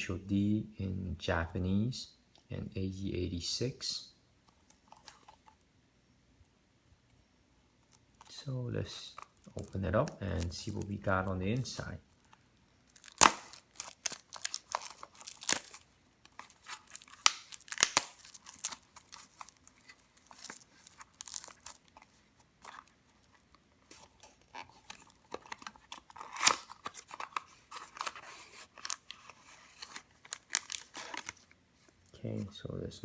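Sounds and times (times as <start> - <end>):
packaging tearing and crinkling: 12.9 - 31.6.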